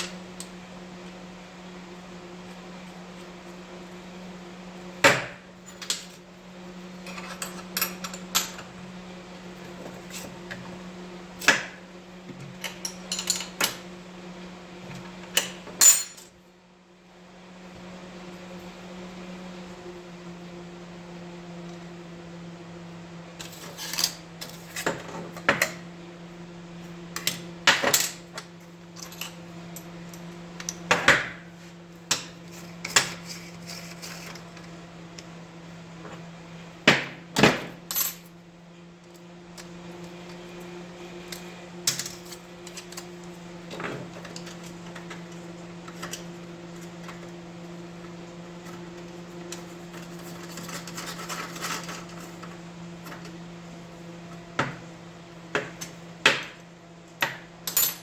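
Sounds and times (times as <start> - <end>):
metal objects clinking and knocking: 57.7 - 58.0.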